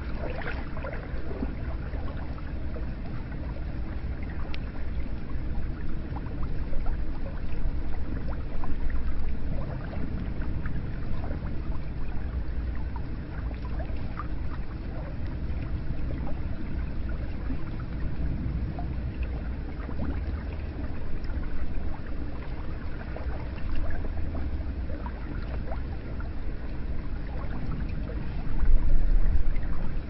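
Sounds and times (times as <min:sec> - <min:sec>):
water splashing and dripping: 0:00.0 - 0:02.2
water flowing: 0:00.0 - 0:30.0.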